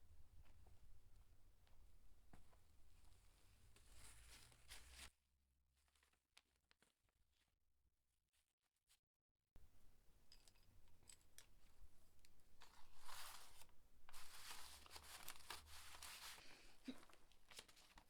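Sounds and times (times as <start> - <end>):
faint rustling and scraping: 2.4 - 5.1, 10.3 - 18.0.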